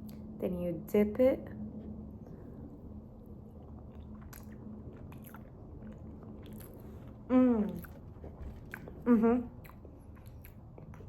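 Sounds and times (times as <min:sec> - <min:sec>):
faint steady hum: 0:00.0 - 0:11.0
person chewing: 0:03.5 - 0:11.0.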